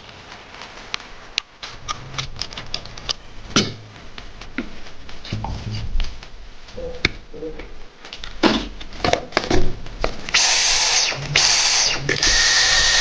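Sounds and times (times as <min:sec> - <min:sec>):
vacuum cleaner motor running: 0:10.3 - 0:13.0.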